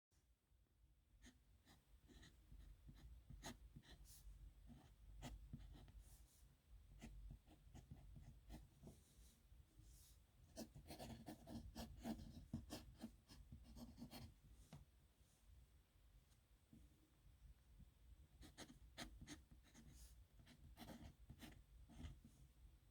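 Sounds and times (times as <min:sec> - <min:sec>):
pen scratching on paper: 0:10.6 - 0:14.3, 0:18.4 - 0:22.3.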